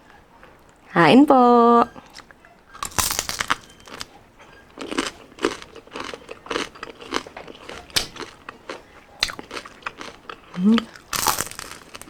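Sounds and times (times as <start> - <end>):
crunchy food chewing: 2.0 - 12.0
sharp crunch of biting: 2.8 - 4.1, 4.8 - 12.0.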